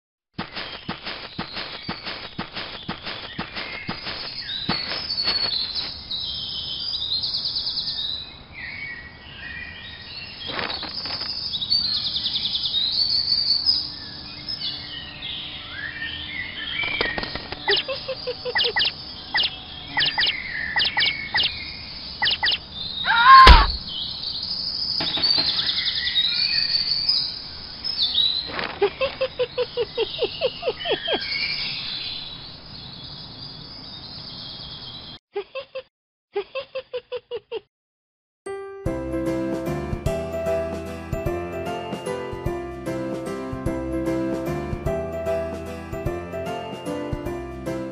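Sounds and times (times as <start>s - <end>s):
small birds chirping: 0.4s - 35.2s
loud thump: 23.3s - 23.9s.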